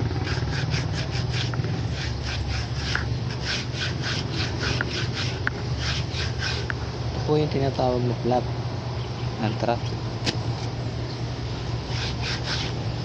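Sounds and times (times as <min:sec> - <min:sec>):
scraping strokes on rubber sole: 0:00.0 - 0:06.8, 0:11.8 - 0:13.0
steady low hum: 0:00.0 - 0:13.0.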